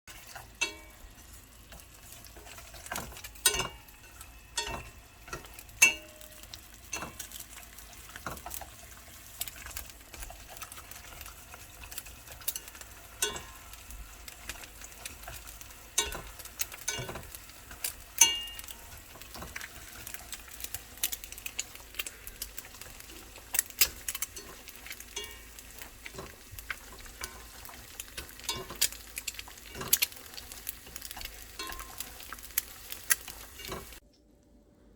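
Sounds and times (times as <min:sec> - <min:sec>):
faint sizzle: 0:00.1 - 0:34.9
utensil clinking against metal pan: 0:02.7 - 0:07.5, 0:11.8 - 0:13.7, 0:16.0 - 0:19.0.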